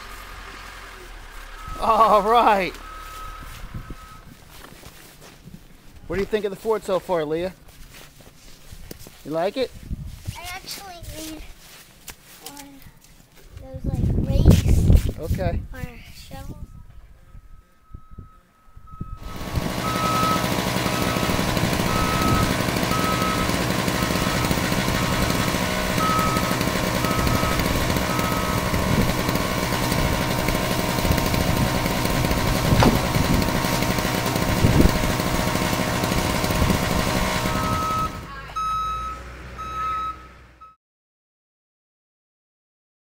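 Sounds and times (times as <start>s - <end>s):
heavy vehicle engine running: 0.0s - 4.6s, 19.0s - 40.7s
reversing alarm beeps: 1.6s - 4.4s, 16.6s - 23.6s, 26.0s - 28.7s, 37.5s - 40.8s.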